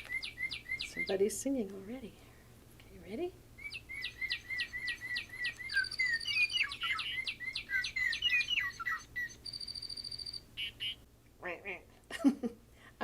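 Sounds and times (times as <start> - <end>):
fast high bird trill: 3.6 - 11.0.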